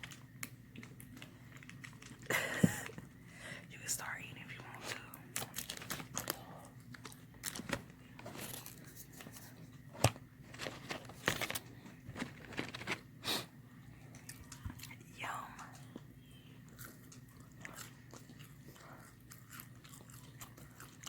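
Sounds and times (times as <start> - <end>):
crunchy bites and chewing: 5.2 - 13.2, 14.0 - 21.0
paper wrapping crinkling and tearing: 5.3 - 13.1.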